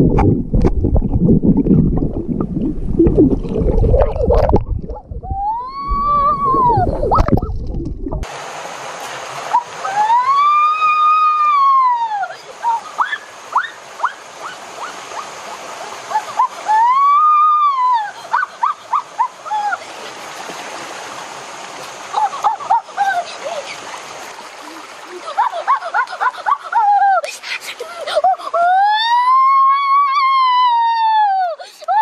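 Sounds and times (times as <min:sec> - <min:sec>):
stream running water: 0:00.0 - 0:32.0.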